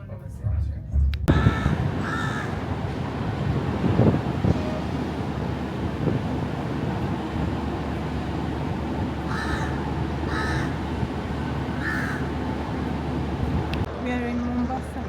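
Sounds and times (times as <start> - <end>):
steady low rumble: 0.0 - 14.0
crow cawing: 1.3 - 2.6, 9.3 - 10.9, 11.7 - 12.4.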